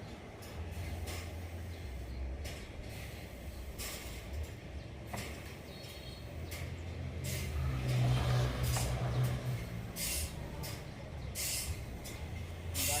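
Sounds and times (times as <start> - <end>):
short hissing bursts: 10.0 - 10.5, 11.4 - 12.0, 12.7 - 13.0.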